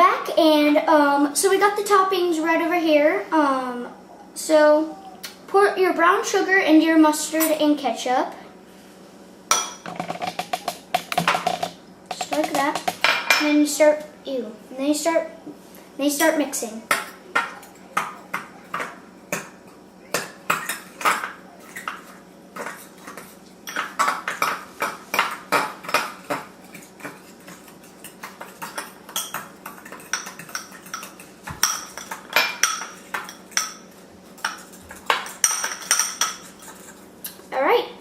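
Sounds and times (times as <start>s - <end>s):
utensil clinking against bowl: 20.2s - 37.0s.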